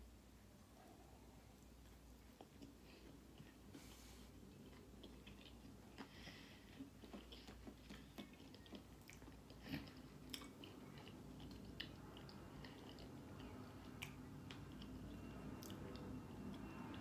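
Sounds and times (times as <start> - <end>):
faint close-mouthed chewing: 1.6 - 17.0.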